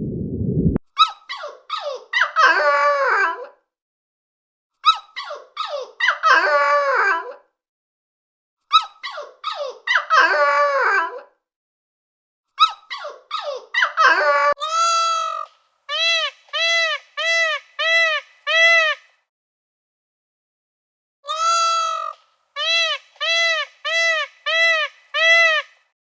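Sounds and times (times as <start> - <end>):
squeaky animal cries: 12.6 - 19.0, 21.3 - 25.7.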